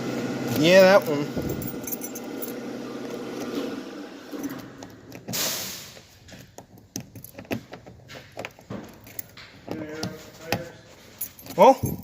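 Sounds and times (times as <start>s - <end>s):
key clicking and rattling in lock: 1.4s - 2.6s, 6.3s - 10.2s, 11.2s - 12.0s.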